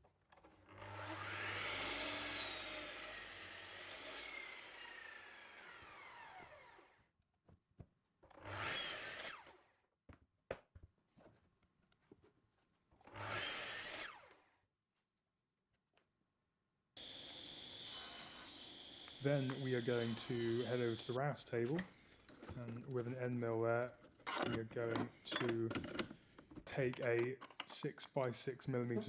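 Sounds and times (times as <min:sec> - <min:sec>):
power saw cutting plywood: 0:00.8 - 0:06.9, 0:08.4 - 0:09.6, 0:13.1 - 0:14.4, 0:17.0 - 0:27.9
saw motor winding down: 0:00.9 - 0:06.9, 0:17.0 - 0:21.9.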